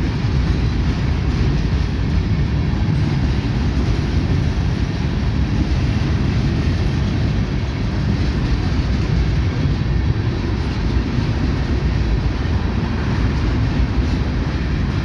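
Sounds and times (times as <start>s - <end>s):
freight train rumbling by: 0.0s - 15.0s.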